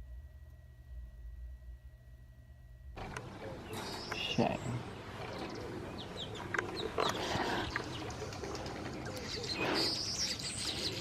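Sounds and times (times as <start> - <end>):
birds chirping: 3.0 - 11.0.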